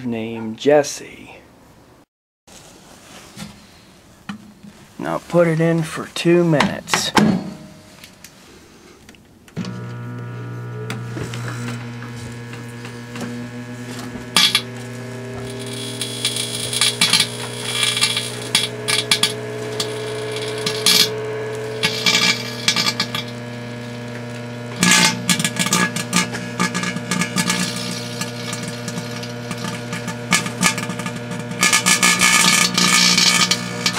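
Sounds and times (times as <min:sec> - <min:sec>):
microwave oven humming: 0:09.6 - 0:33.9
sharp pops and crackling: 0:11.2 - 0:33.9.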